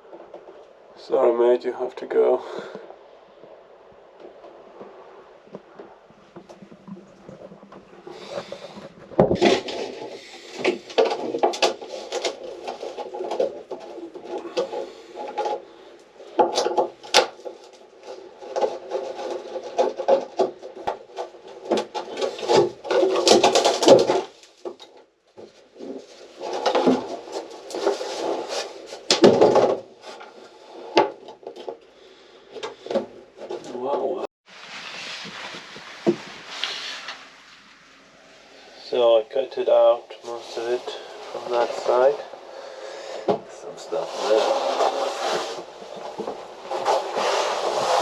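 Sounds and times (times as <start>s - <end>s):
wood cracking and knocking: 4.2s - 34.1s.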